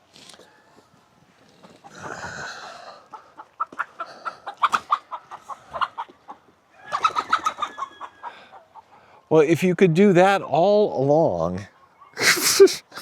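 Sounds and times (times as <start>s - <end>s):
chicken clucking in alarm: 1.7s - 9.2s
chicken squawking: 1.8s - 6.1s, 6.8s - 9.1s.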